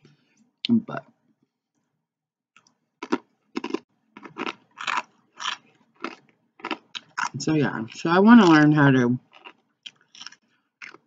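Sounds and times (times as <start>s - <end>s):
chewing crunchy tortilla chips: 3.0s - 11.0s.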